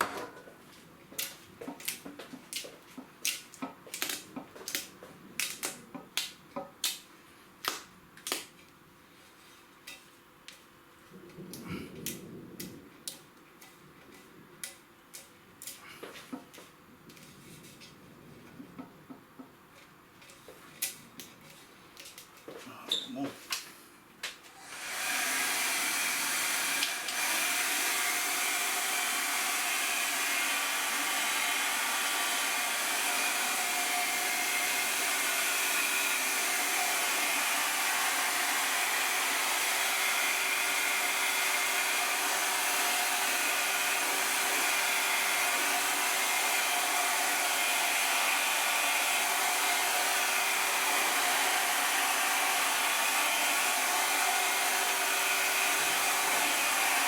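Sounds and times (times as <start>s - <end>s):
hot-air gun blowing: 24.5s - 57.0s.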